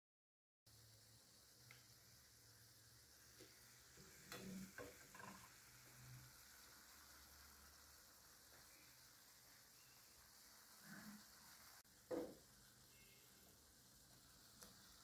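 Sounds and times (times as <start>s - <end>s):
food sizzling in oil: 0.7s - 15.0s
knocks: 12.1s - 12.4s.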